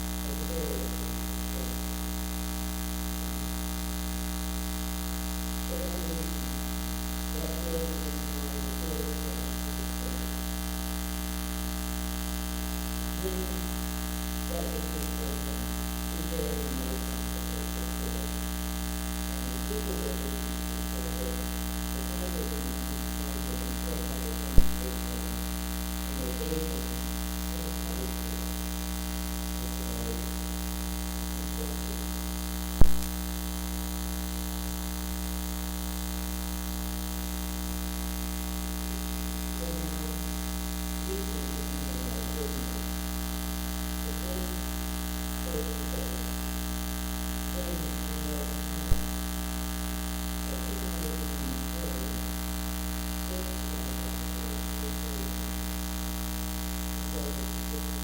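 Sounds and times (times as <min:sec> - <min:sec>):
electrical mains hum: 0:00.0 - 0:58.0
faint muffled voices: 0:00.2 - 0:01.8, 0:05.7 - 0:06.6, 0:07.3 - 0:10.3, 0:13.2 - 0:13.8, 0:14.4 - 0:18.5, 0:19.3 - 0:25.5, 0:26.1 - 0:28.5, 0:29.6 - 0:30.3, 0:31.4 - 0:32.1, 0:39.6 - 0:40.2, 0:41.0 - 0:43.0, 0:44.0 - 0:44.7, 0:45.4 - 0:46.4, 0:47.5 - 0:49.2, 0:50.4 - 0:52.3, 0:53.2 - 0:55.5, 0:57.0 - 0:58.0.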